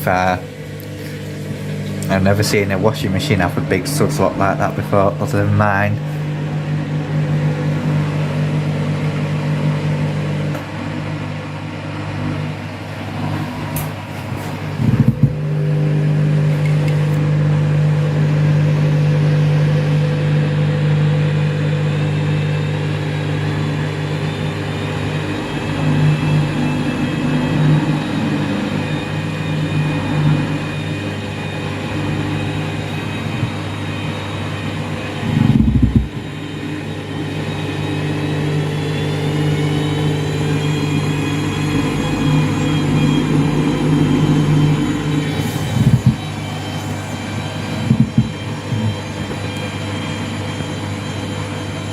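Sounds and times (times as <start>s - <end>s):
washing machine drum spinning: 0.0s - 51.9s
washing machine drum thump: 14.7s - 15.5s.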